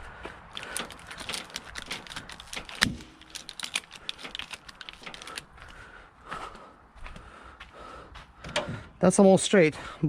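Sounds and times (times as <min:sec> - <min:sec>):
ratchet strap clicking: 0:00.5 - 0:05.5.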